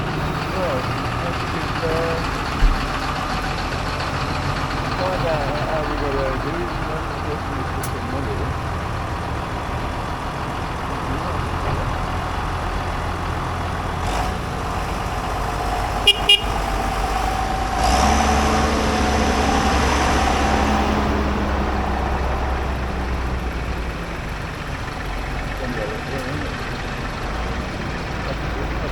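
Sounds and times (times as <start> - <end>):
tractor engines passing: 0.0 - 28.9
short horn toots: 16.0 - 16.8.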